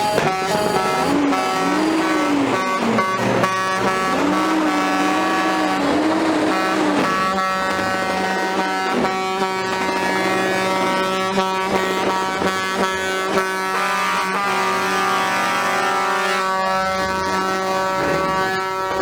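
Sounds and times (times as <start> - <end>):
wavering siren-like tone: 0.0 - 12.1
truck air horns chord: 0.0 - 19.0.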